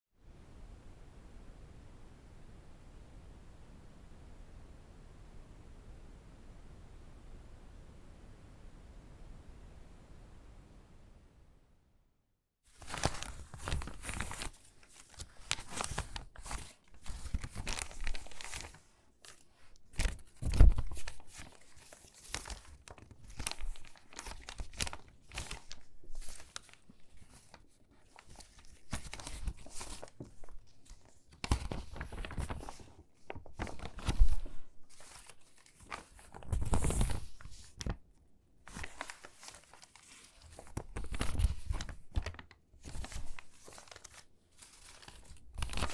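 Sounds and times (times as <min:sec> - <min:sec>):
paper crunches: 0:12.7 - 0:38.0, 0:38.7 - 0:45.9
stiff paper crackling and rustling: 0:12.7 - 0:38.0, 0:38.7 - 0:45.9.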